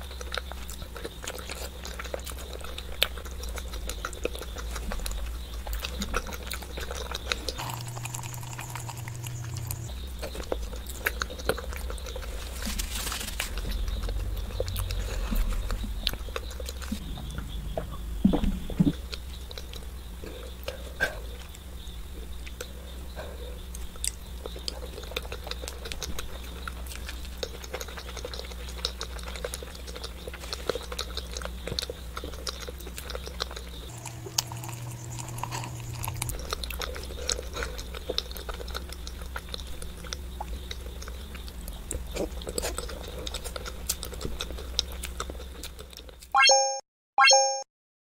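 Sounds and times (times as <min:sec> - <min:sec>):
chewing and biting: 0:00.0 - 0:17.6, 0:18.4 - 0:46.3
low hum: 0:07.6 - 0:10.1, 0:15.7 - 0:20.2.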